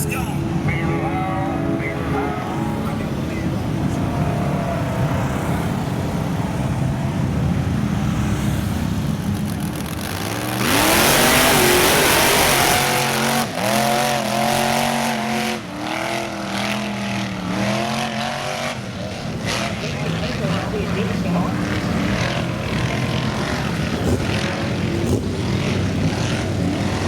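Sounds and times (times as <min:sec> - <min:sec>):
loud rushing noise: 0:00.0 - 0:17.9
off-road vehicle engine revving: 0:00.0 - 0:27.0.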